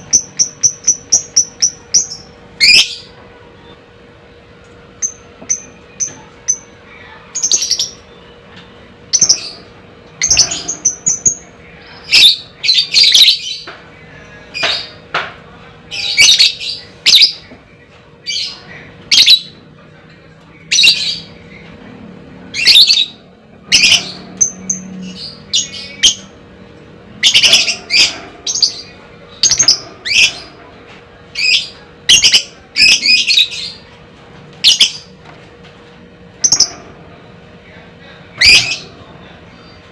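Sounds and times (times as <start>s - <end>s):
lovebird chirping and squawking: 22.5s - 26.3s, 27.2s - 30.5s, 38.4s - 38.8s.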